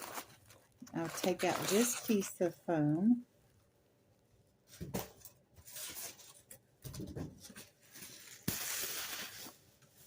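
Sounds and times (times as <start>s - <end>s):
packing material rustling: 0.0s - 2.4s, 7.4s - 10.0s.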